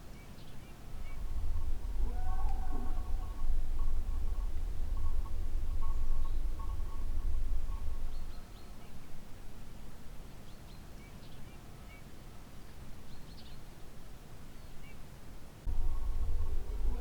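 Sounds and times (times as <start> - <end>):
low rumble: 15.7 - 17.0.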